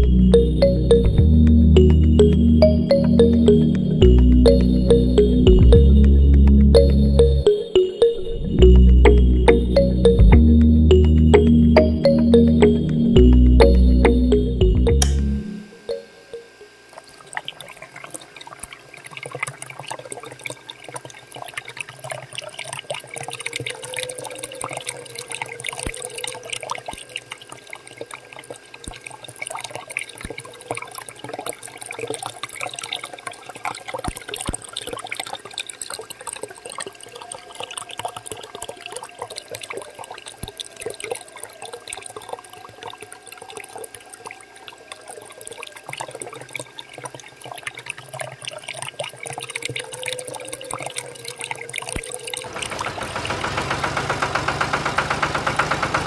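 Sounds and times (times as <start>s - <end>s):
water pouring and splashing: 16.9s - 55.9s.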